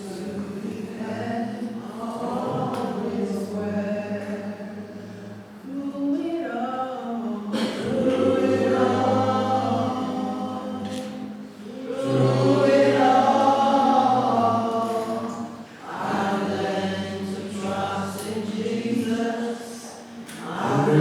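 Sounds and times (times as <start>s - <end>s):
group singing worship song: 0.0s - 21.0s.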